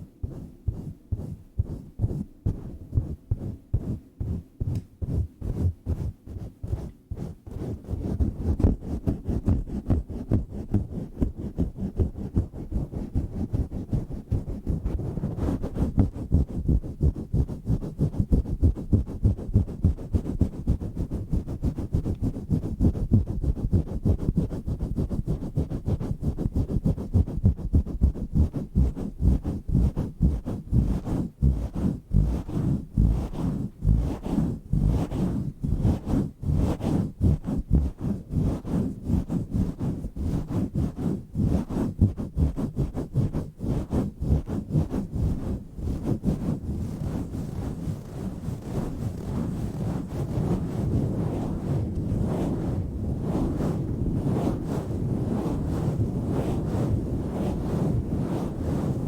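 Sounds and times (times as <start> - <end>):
microphone cover rubbing: 0.0 - 59.0.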